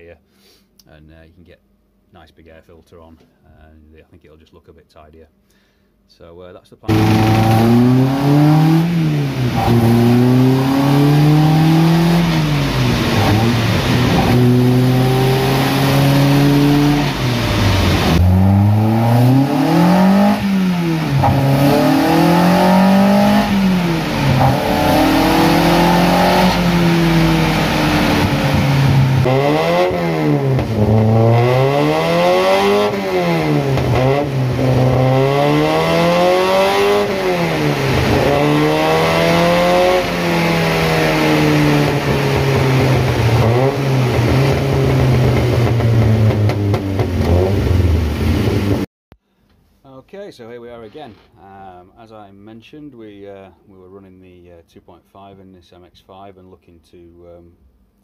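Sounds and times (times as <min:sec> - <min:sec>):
car engine revving: 0:06.9 - 0:48.9.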